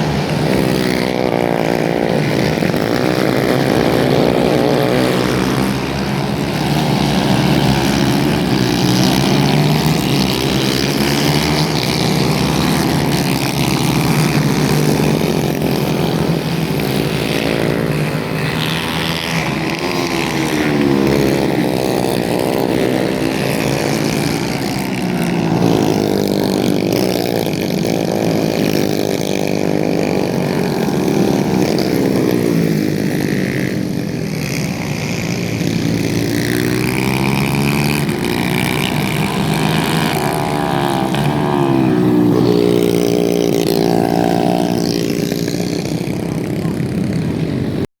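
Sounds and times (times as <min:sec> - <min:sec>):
racing kart engines: 0:00.0 - 0:47.9.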